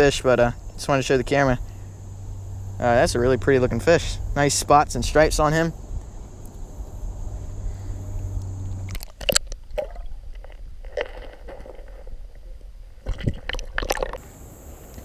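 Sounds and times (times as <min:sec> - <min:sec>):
water splashing and sloshing: 0:08.6 - 0:14.3.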